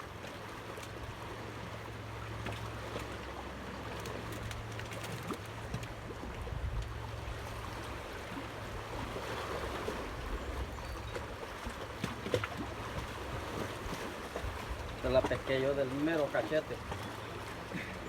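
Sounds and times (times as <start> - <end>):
water lapping and rushing: 0.0 - 18.0.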